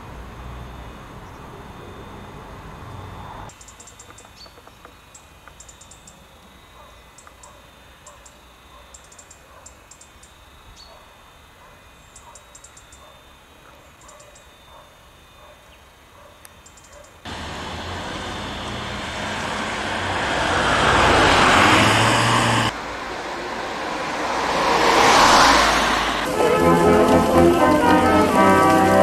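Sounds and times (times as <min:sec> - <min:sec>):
small birds chirping: 0:03.5 - 0:06.2.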